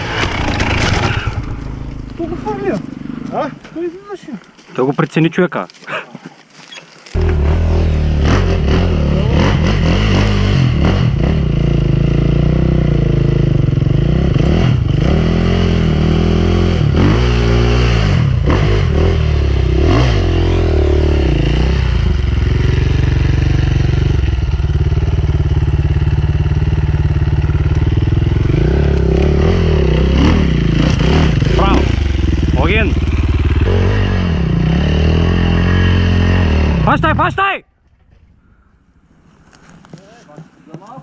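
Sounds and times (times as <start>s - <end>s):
dirt bike engine revving: 7.2s - 37.4s.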